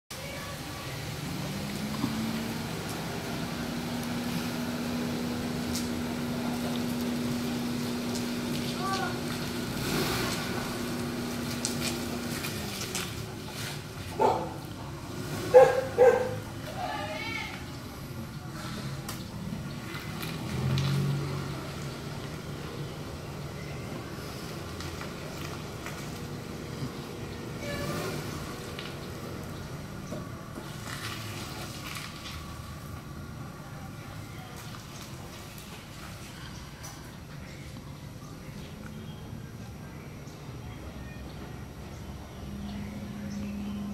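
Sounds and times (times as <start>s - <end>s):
car engine running at low revs: 0.6s - 16.7s
car engine at low revs: 0.6s - 16.8s, 17.7s - 36.5s.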